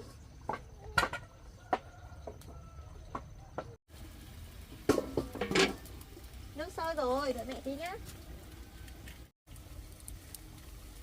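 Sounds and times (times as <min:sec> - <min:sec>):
pot clattering: 0:04.8 - 0:05.9
cooking pot and lid clinking: 0:04.9 - 0:05.8.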